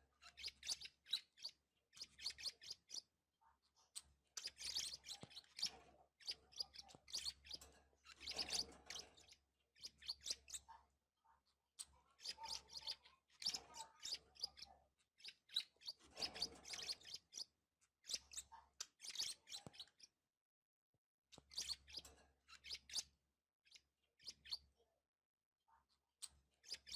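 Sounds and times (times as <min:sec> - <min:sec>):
budgerigars chirping and chattering: 0:00.2 - 0:03.1, 0:03.9 - 0:10.8, 0:11.8 - 0:20.1, 0:21.3 - 0:23.1, 0:23.7 - 0:24.7, 0:26.6 - 0:26.9.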